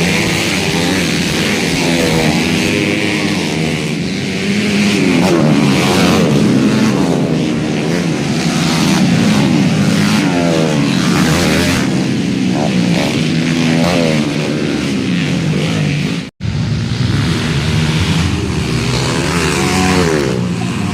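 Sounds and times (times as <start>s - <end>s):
motocross bike engines revving: 0.0s - 20.9s.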